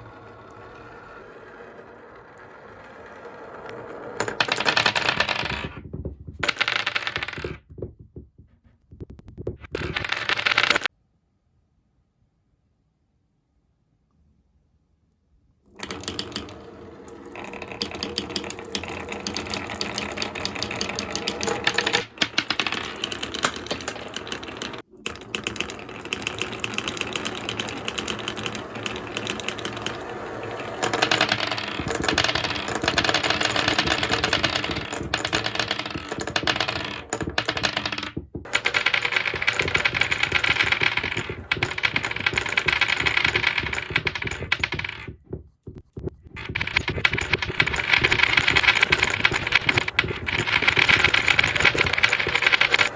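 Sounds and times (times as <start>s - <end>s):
marbles rattling down wooden tracks: 0.0s - 7.6s, 9.6s - 10.9s, 15.8s - 52.9s.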